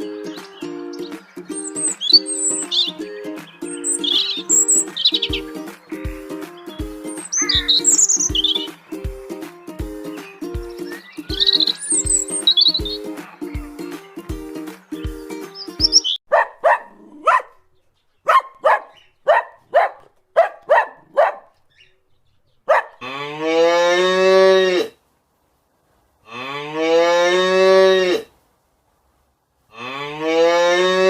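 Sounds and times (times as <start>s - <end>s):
cow mooing: 23.0s - 24.9s, 26.3s - 28.3s, 29.8s - 31.0s.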